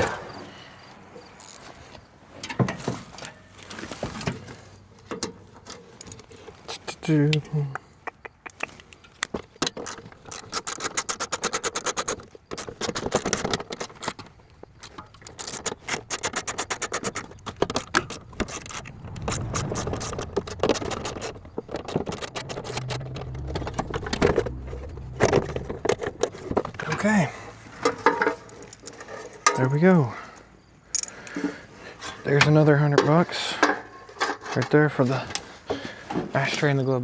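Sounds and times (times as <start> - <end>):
hand tools clicking on metal: 8.1 - 18.2
low hum: 16.8 - 28.0.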